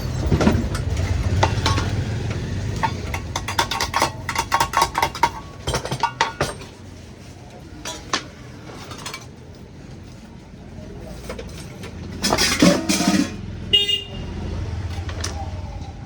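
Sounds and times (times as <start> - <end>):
road traffic: 0.0 - 16.0
vehicle engine rumble: 0.0 - 16.0
car horn toot: 13.7 - 14.4.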